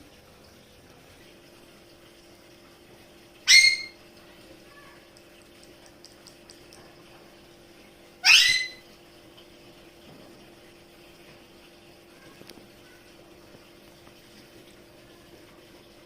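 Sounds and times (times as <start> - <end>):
parrot squawks: 3.4 - 4.0, 8.2 - 8.8.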